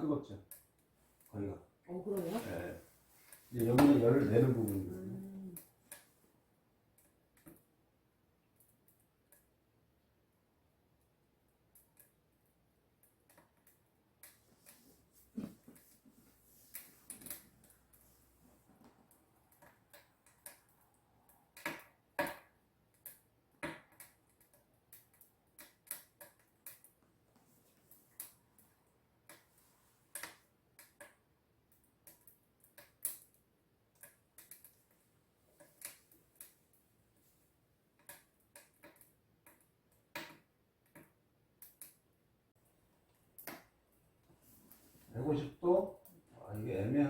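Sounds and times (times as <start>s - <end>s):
stove ticks and pops: 19.0s - 27.1s, 30.1s - 36.8s, 38.0s - 42.1s, 43.3s - 43.8s.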